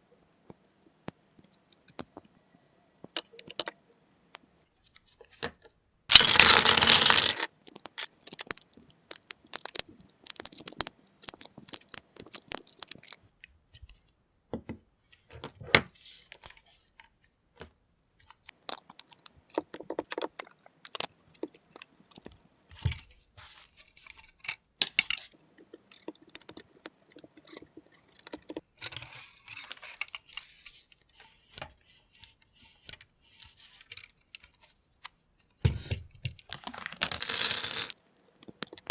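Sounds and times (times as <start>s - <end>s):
plastic bricks clicking: 3.2s - 3.8s, 6.1s - 13.2s, 18.6s - 22.7s, 24.9s - 28.6s, 36.7s - 38.9s.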